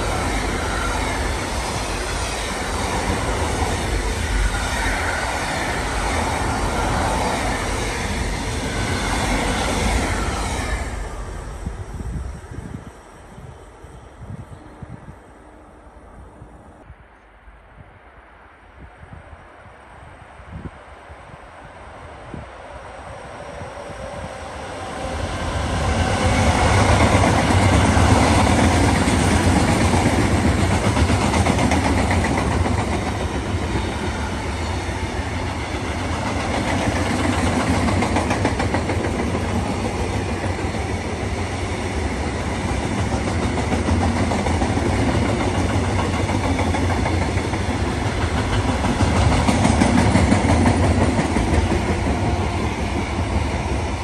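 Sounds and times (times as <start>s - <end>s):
train wheels clattering on rails: 25.4s - 54.0s.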